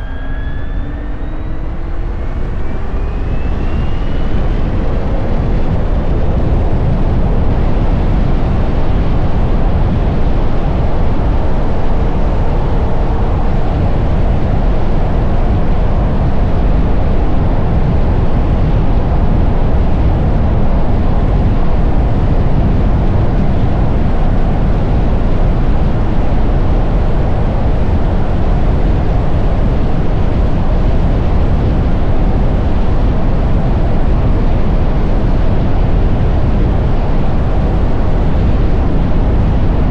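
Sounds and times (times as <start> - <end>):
faint electric motor whine: 0.0 - 16.8
wind rush on microphone: 0.0 - 39.9.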